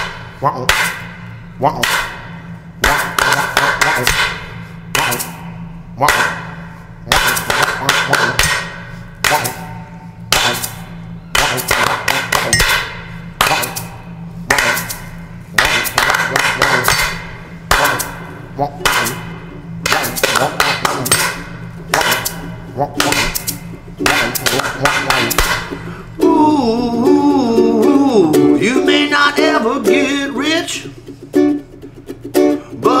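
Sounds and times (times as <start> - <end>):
ukulele strumming: 14.5 - 33.0.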